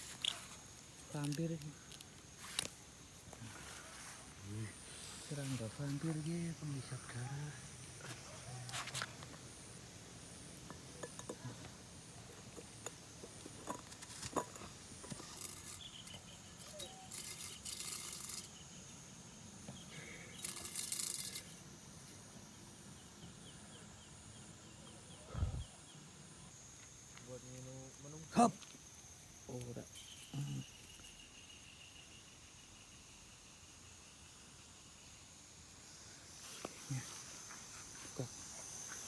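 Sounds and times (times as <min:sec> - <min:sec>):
faint high insect call pulsing: 0:00.0 - 0:39.0.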